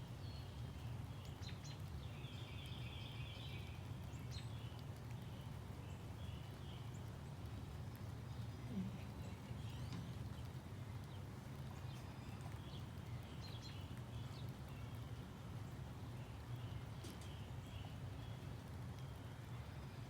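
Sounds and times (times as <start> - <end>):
bird chirps: 8.4 - 15.1.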